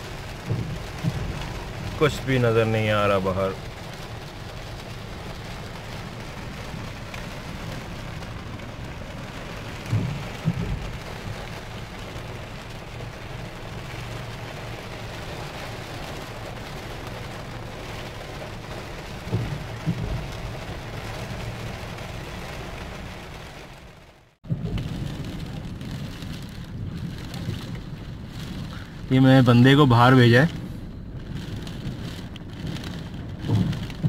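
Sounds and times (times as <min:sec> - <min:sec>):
heavy rain on car roof: 0:00.0 - 0:34.0
short low thumps: 0:09.7 - 0:11.4.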